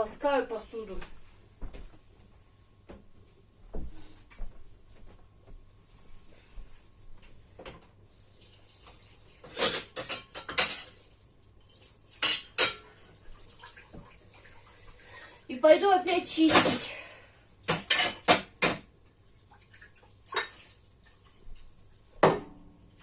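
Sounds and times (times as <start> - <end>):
dishes and cutlery clattering: 9.4 - 11.0, 12.1 - 13.1, 17.7 - 18.9.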